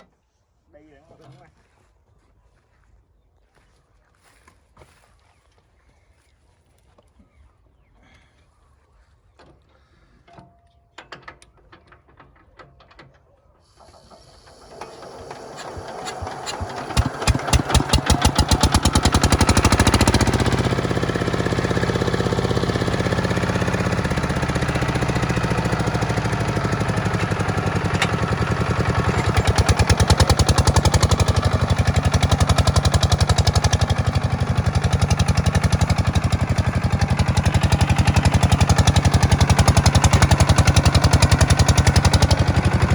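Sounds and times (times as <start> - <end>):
diesel tractor engine: 11.2 - 42.9.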